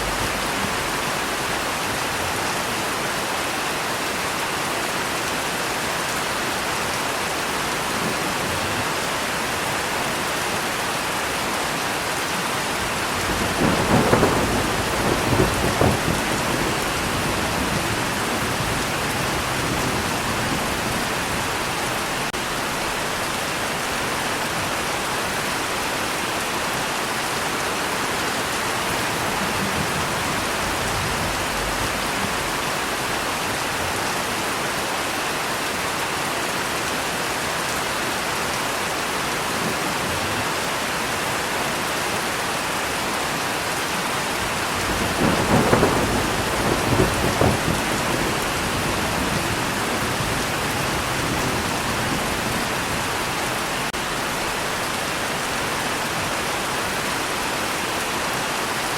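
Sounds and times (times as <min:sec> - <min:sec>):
thunder rumbling: 0:00.0 - 0:01.6, 0:12.8 - 0:23.3, 0:28.4 - 0:33.1, 0:44.4 - 0:54.2
steady rain falling: 0:00.0 - 0:58.9.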